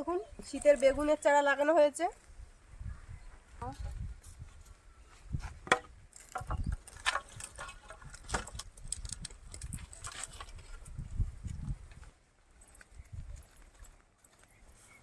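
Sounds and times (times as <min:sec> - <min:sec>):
firewood sticks knocking and clattering: 0:05.6 - 0:10.9.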